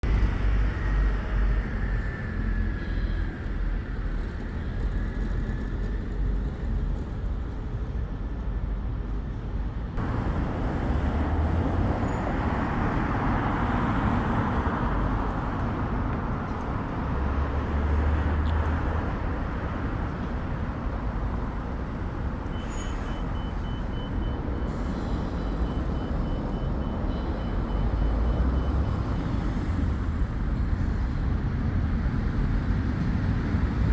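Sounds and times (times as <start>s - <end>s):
loud vehicle passing: 10.0s - 16.0s
road traffic passing: 10.0s - 33.9s.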